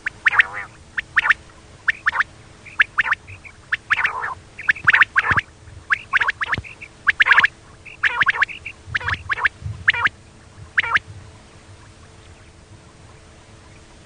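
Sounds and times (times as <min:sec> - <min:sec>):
soft chirps: 0:00.0 - 0:11.0
quail calling: 0:00.0 - 0:11.1.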